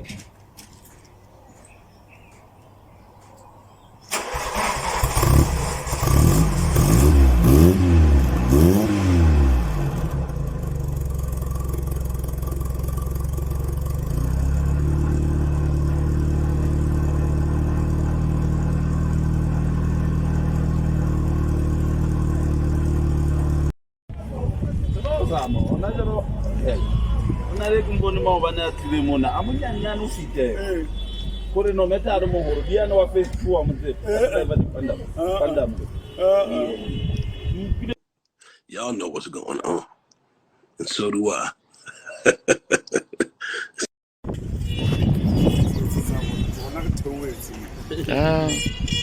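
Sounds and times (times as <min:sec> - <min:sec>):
car engine starting and idling: 0:04.1 - 0:23.7.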